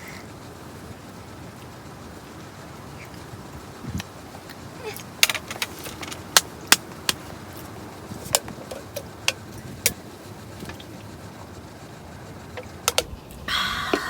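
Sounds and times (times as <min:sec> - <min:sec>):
small hard objects clattering: 0:05.0 - 0:09.6.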